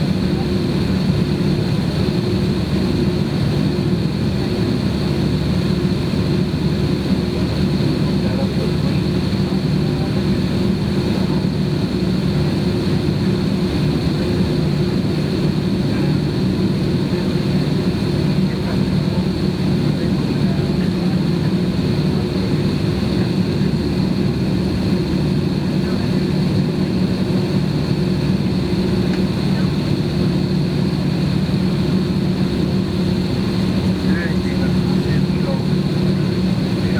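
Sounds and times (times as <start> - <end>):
jet engines droning in cabin: 0.0 - 36.9.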